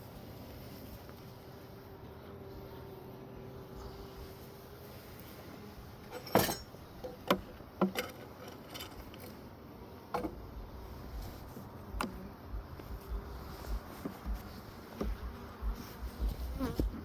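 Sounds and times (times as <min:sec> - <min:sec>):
wooden hive frames clicking: 0:06.0 - 0:10.6, 0:11.6 - 0:17.0.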